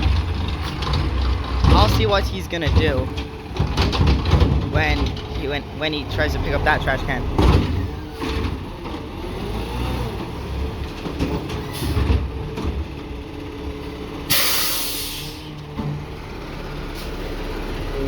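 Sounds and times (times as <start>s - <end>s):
metal clunks: 0.0s - 9.0s
garbage truck running: 0.0s - 18.0s.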